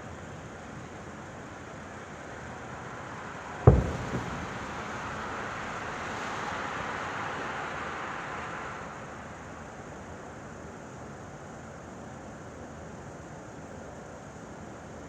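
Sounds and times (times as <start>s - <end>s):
steady hiss: 3.7s - 6.0s
firework boom: 3.7s - 6.2s
smaller firework bang: 3.7s - 6.5s.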